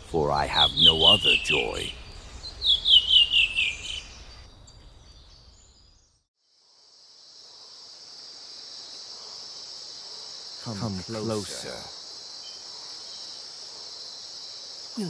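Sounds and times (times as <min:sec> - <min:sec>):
small bird chirping: 0:00.1 - 0:06.2
insect chirring: 0:00.3 - 0:05.7, 0:07.0 - 0:15.0.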